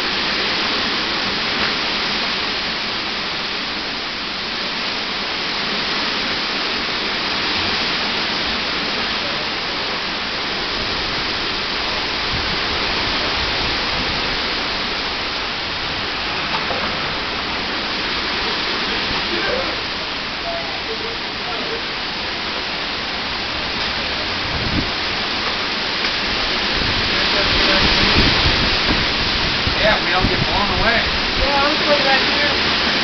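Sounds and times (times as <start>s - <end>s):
strong storm wind blowing: 0.0s - 33.0s.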